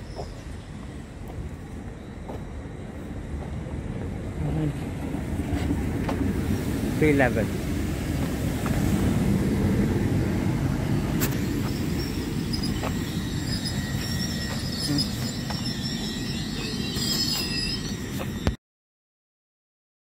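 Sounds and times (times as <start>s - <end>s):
train wheels rumbling on rail: 0.0s - 18.6s
brake squeal: 11.0s - 18.6s.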